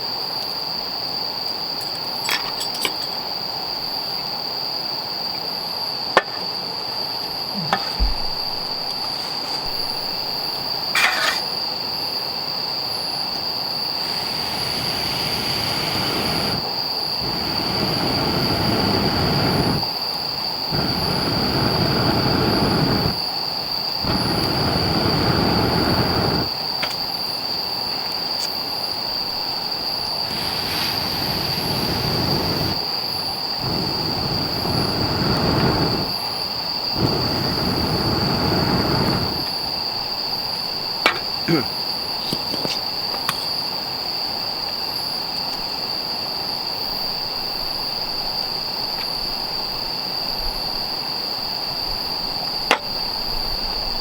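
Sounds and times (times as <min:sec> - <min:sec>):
crickets trilling: 0:00.0 - 0:54.0.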